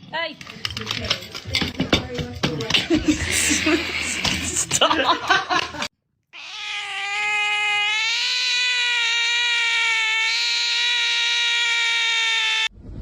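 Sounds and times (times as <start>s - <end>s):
cat yowling: 6.4s - 12.7s.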